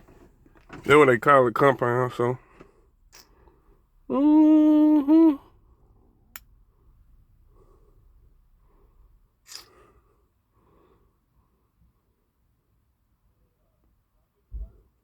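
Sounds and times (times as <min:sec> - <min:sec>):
man humming: 0:04.1 - 0:05.5.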